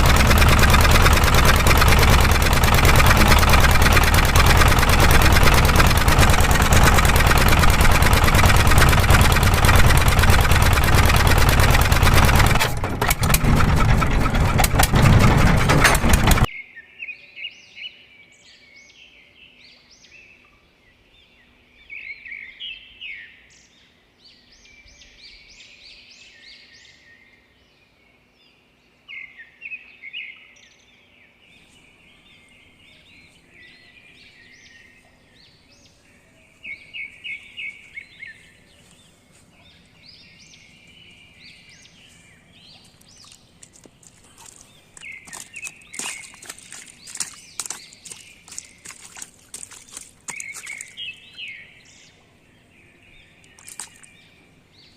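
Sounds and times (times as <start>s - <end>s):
birds chirping and singing: 30.0s - 54.9s.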